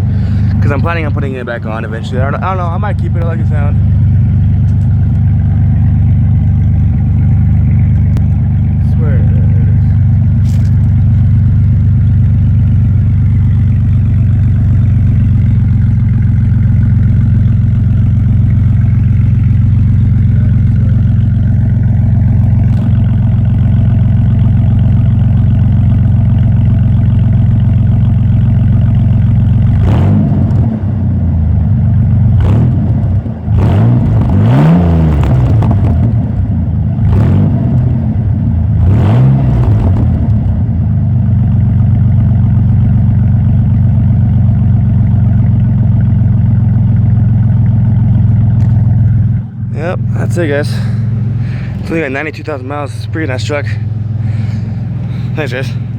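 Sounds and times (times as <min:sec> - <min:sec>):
car engine idling and revving: 0:00.0 - 0:55.9.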